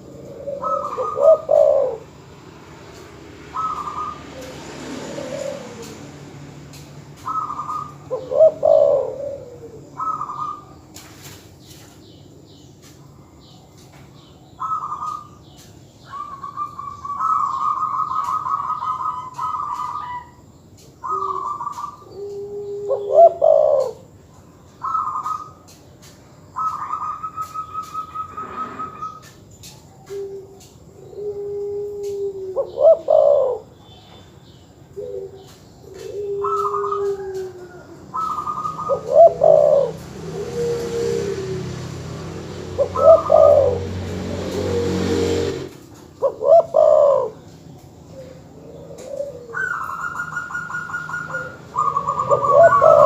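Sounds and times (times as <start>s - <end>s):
stuttering dove coos: 0.0s - 2.1s, 3.6s - 6.1s, 7.3s - 10.4s, 21.0s - 24.0s, 26.7s - 29.3s, 30.0s - 33.7s, 35.0s - 42.0s, 42.8s - 47.4s, 48.2s - 53.0s
low mellow dove coos: 0.0s - 2.2s, 3.5s - 6.2s, 7.2s - 10.7s, 21.0s - 24.2s, 26.6s - 34.1s, 34.9s - 53.0s.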